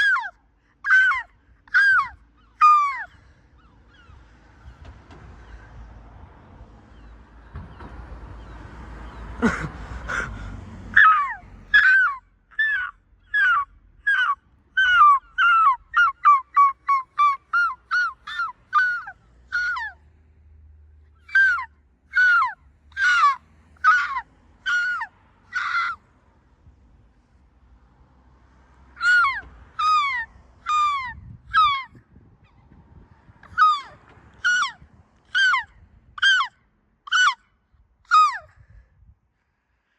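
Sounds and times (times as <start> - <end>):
seagull calling: 0.0 - 4.8, 9.4 - 20.0, 21.2 - 26.0, 29.0 - 32.0, 33.4 - 37.4, 38.1 - 38.5.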